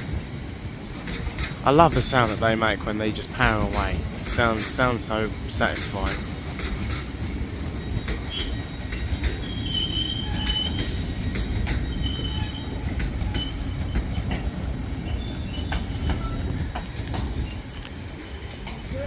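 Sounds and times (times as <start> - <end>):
diesel train low rumble: 0.0 - 19.0
high-pitched wheel squeals: 7.8 - 14.0.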